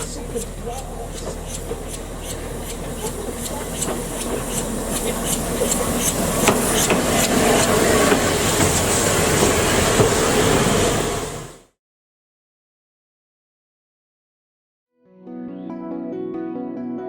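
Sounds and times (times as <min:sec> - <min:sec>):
fast even train clicking: 0:00.0 - 0:11.3
train rumbling hiss: 0:00.0 - 0:11.6.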